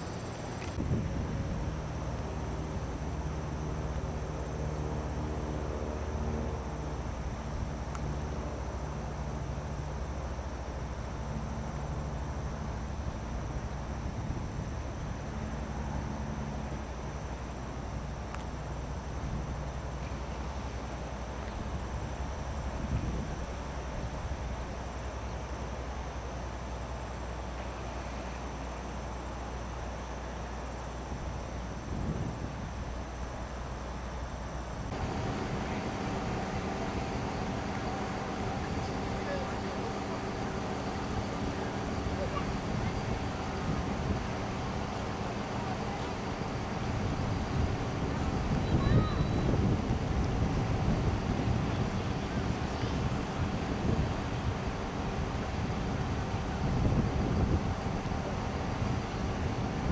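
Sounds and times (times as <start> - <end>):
insects trilling: 0.0 - 59.9
low hum: 34.7 - 59.9
low rushing noise: 34.8 - 59.9.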